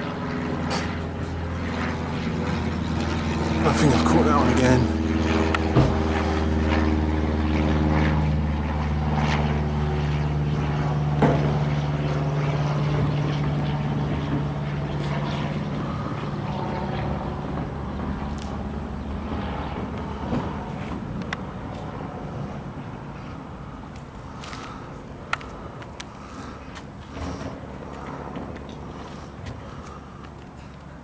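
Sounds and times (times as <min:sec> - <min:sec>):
propeller plane droning overhead: 0:00.0 - 0:31.0.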